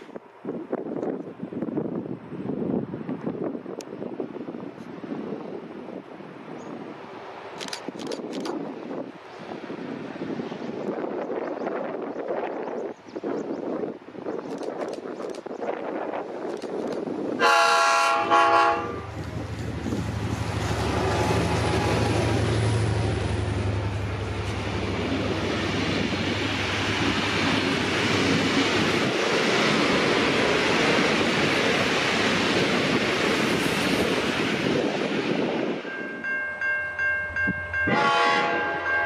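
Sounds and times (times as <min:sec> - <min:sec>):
train rumbling past: 0:00.0 - 0:39.0
locomotive horn blasts: 0:17.4 - 0:19.2, 0:37.8 - 0:39.0.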